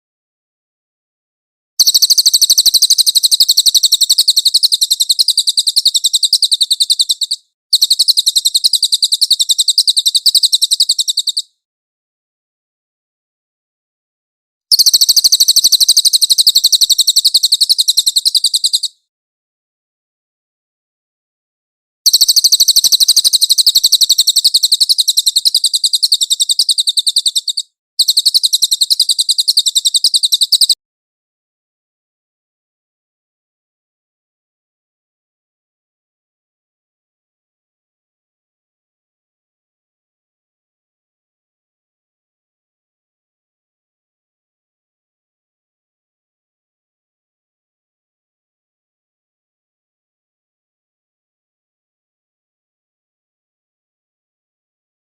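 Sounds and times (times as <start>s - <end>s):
bird singing a high-pitched trill: 1.8s - 11.5s, 14.7s - 19.0s, 22.1s - 30.8s.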